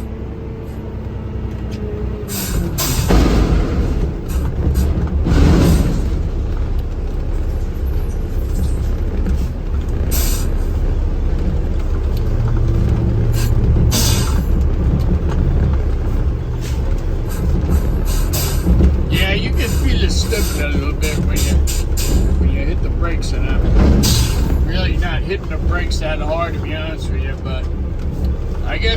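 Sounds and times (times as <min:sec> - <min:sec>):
truck engine rumble: 0:00.0 - 0:28.9.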